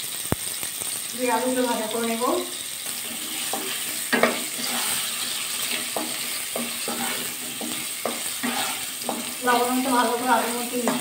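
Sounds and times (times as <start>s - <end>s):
potatoes sizzling in oil: 0.0s - 11.0s
spatula scraping and knocking pan: 2.8s - 11.0s.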